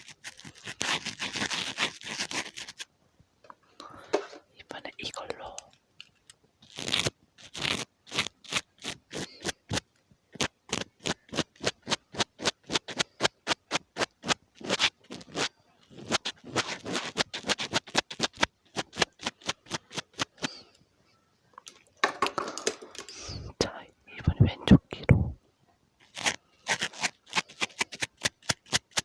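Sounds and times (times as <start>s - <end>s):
ear pick scratching microphone: 10.4s - 20.5s, 26.0s - 29.0s.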